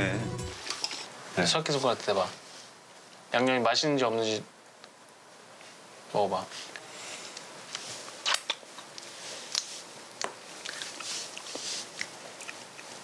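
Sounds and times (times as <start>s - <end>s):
person chewing crunchy food: 8.3s - 13.0s.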